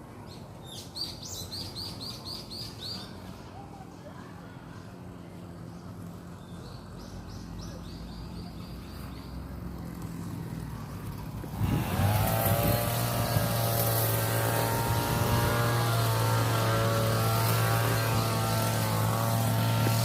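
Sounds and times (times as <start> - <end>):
loud engine drone: 9.2 - 20.0.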